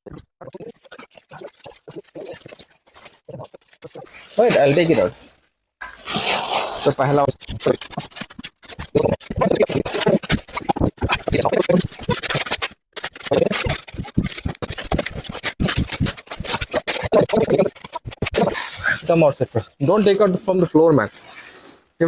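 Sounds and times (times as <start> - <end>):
plastic sheeting crackling and ripping: 0.5 - 19.3.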